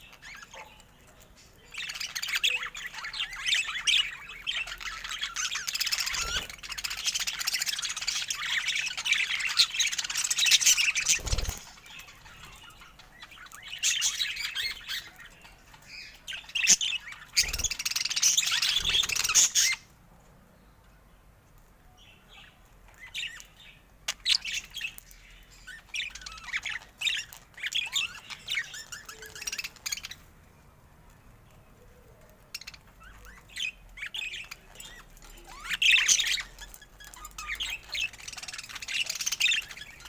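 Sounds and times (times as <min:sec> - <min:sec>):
budgerigars chattering: 0:01.7 - 0:19.8.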